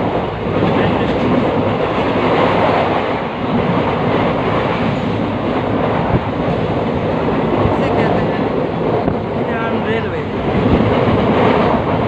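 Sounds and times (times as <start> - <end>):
train carriage rumbling and rattling: 0.0 - 12.0.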